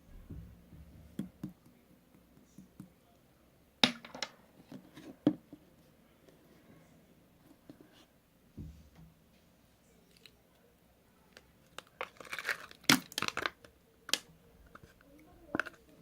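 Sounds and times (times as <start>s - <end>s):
small objects clicking and knocking: 11.6s - 15.8s.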